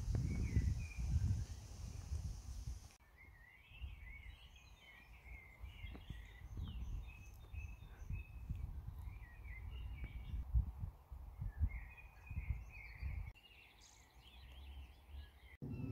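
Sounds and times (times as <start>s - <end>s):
wind rumble on microphone: 0.0s - 2.9s, 5.6s - 13.3s, 15.6s - 15.9s
songbirds warbling: 11.6s - 15.9s.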